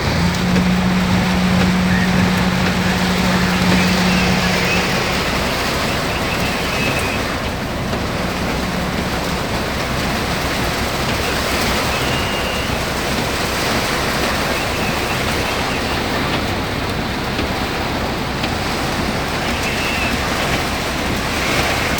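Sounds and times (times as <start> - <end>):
low hum: 0.0 - 12.0
heavy rain hiss: 0.0 - 21.9.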